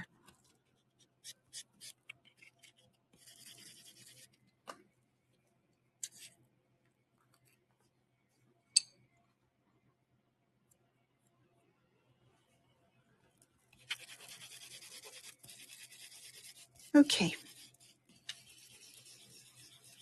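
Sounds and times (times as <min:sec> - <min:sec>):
nail buffer rubbing on nail: 0:13.8 - 0:20.0.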